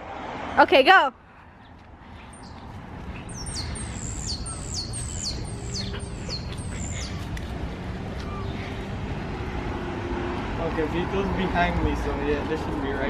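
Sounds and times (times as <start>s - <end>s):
low street noise rumble: 0.0s - 13.0s
songbird calling high notes: 3.2s - 7.2s.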